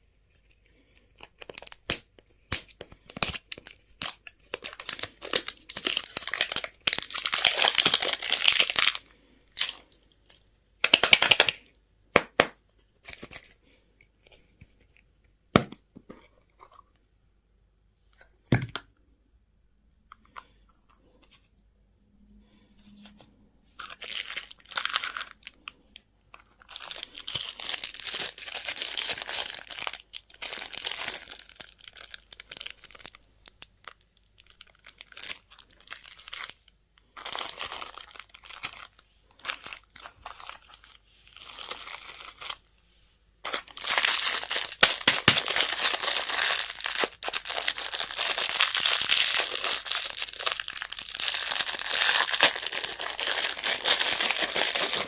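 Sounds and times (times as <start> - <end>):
plastic packaging crinkling and tearing: 0.3 - 11.6, 23.8 - 25.8, 26.4 - 42.7, 43.4 - 55.0.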